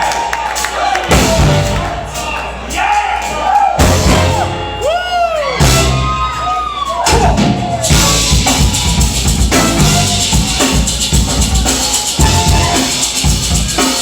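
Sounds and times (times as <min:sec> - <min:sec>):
people shouting and whooping: 0:00.0 - 0:10.4
live band playing loudly: 0:00.0 - 0:14.0.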